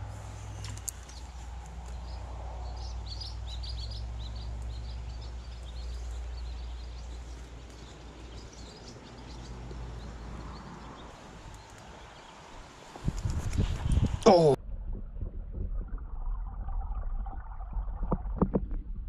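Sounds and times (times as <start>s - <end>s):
small birds chirping: 0.4s - 14.6s
low rumble: 13.1s - 19.0s.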